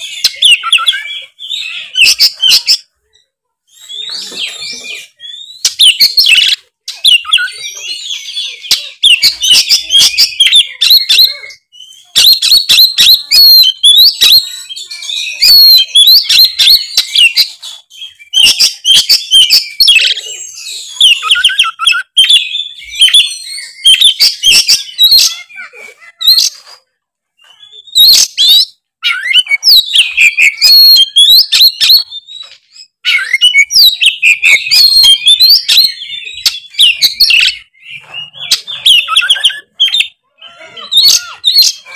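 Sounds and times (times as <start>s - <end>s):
bird singing rapid varied song: 0.0s - 41.9s.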